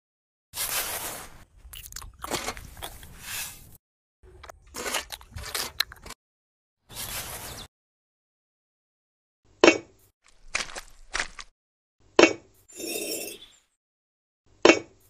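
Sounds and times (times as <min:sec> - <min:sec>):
crunching gritty sounds: 0:00.6 - 0:03.6, 0:04.3 - 0:06.2, 0:10.2 - 0:11.5.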